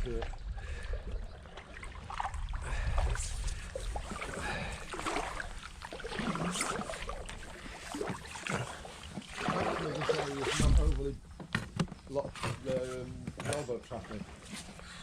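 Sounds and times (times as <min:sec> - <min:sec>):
paddle splashes: 0:00.0 - 0:11.1.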